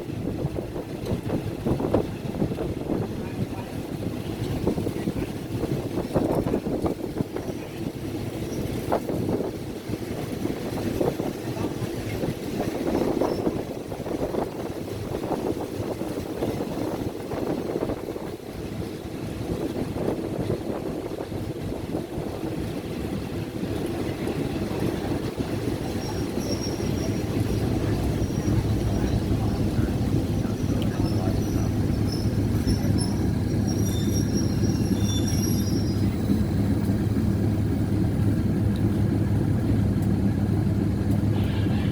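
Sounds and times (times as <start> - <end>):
train running on rails: 0.0 - 41.9.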